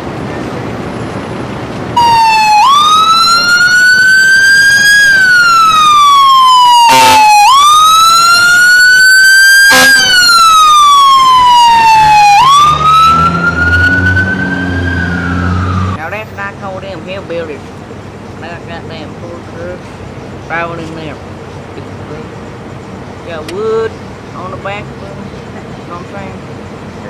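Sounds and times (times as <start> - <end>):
siren wailing: 2.0 - 16.0.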